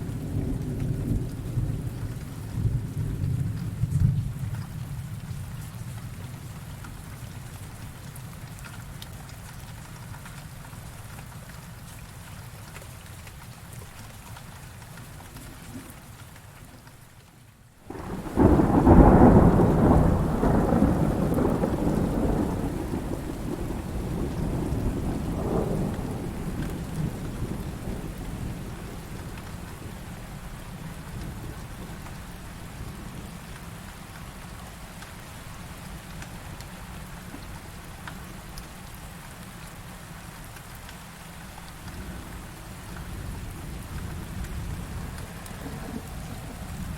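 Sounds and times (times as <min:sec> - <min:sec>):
heavy rain falling: 0:00.0 - 0:46.9
thunder rumbling: 0:17.9 - 0:32.1, 0:42.0 - 0:46.9.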